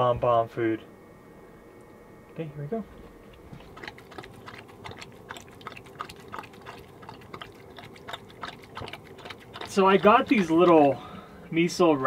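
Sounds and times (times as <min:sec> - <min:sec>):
dog eating wet food: 0:03.2 - 0:11.3.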